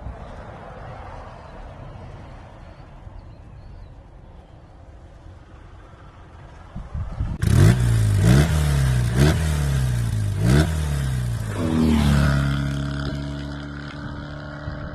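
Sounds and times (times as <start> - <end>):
motorcycle engine revving and idling: 7.0 - 14.9.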